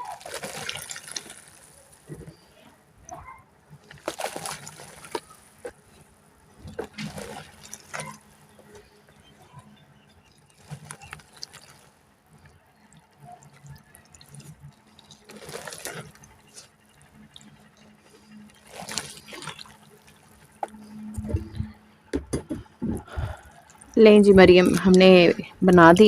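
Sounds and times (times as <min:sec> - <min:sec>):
water dripping: 0:00.0 - 0:02.0, 0:06.7 - 0:08.3, 0:09.2 - 0:21.7, 0:23.0 - 0:25.8
water pouring onto dry mud: 0:00.0 - 0:02.0, 0:06.9 - 0:08.2, 0:10.3 - 0:11.9, 0:13.2 - 0:17.9, 0:18.5 - 0:20.4
low thuds: 0:21.1 - 0:23.4.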